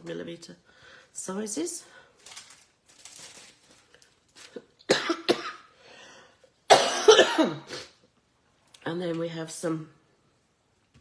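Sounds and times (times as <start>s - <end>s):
woman coughing: 4.9s - 5.7s, 6.7s - 8.0s.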